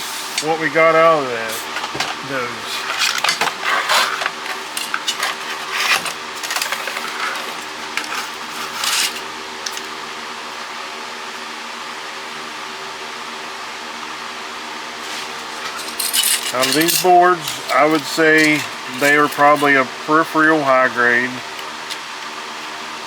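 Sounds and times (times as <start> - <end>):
steady hum: 0.0 - 23.0
small plastic parts clattering: 1.7 - 9.9, 15.6 - 19.8.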